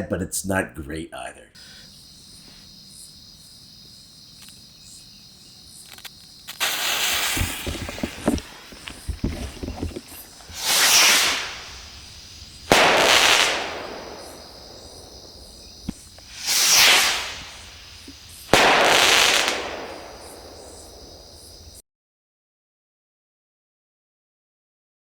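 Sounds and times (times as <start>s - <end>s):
firework rocket hissing: 6.5s - 21.8s
loud firework burst: 6.5s - 21.8s.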